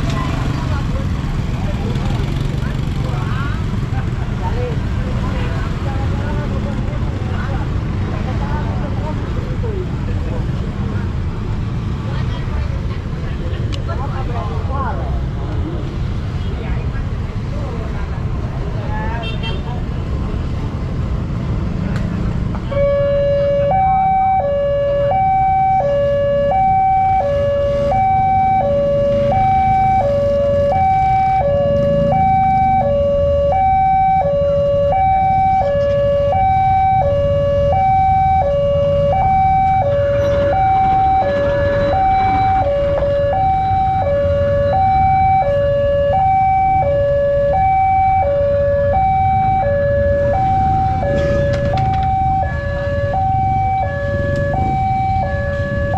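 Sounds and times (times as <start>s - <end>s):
low traffic rumble: 0.0s - 55.9s
level crossing alarm two-tone warble: 22.8s - 55.9s.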